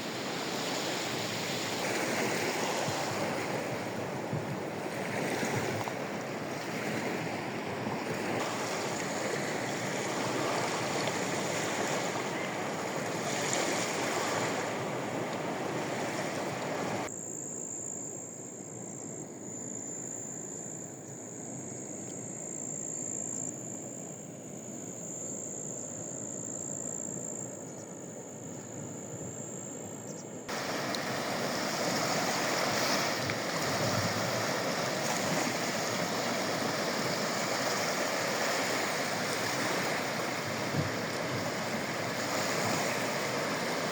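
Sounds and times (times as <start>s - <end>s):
sea waves breaking on shore: 0.0s - 17.1s, 30.5s - 43.9s.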